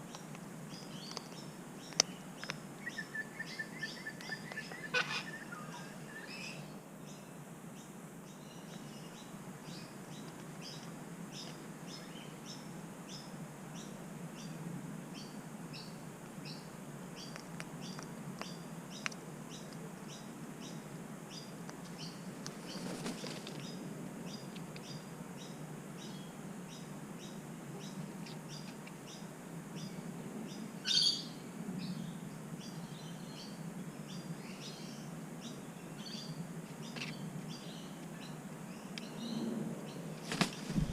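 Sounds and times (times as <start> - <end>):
birds chirping: 0.1 - 14.6, 15.2 - 40.9
bird squawk: 2.8 - 6.6
wings fluttering: 21.8 - 23.8, 40.1 - 40.9.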